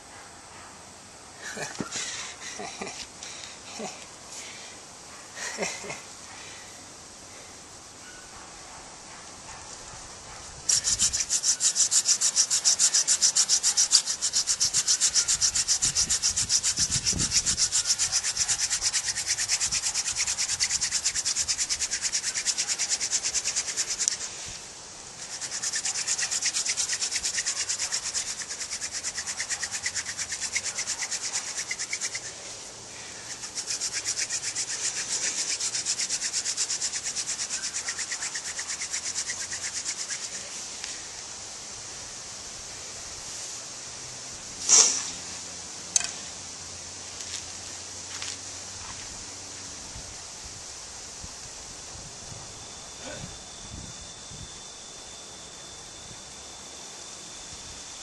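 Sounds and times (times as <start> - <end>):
wooden spindle grinding on hearth board: 10.7 - 24.2, 25.2 - 32.4.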